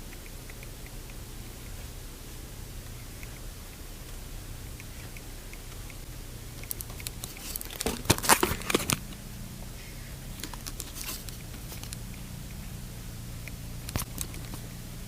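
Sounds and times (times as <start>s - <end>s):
steady low hum: 0.0s - 15.0s
crinkling handling noise: 6.5s - 9.2s, 10.4s - 12.0s.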